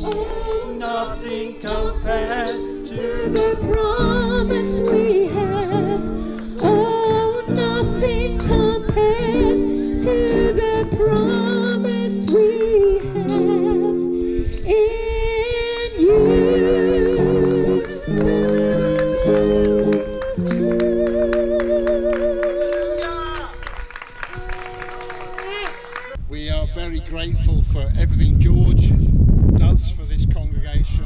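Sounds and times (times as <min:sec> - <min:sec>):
person singing with vibrato: 0:00.0 - 0:26.2
sustained chords: 0:16.0 - 0:26.2
wind buffeting microphone: 0:26.2 - 0:31.0.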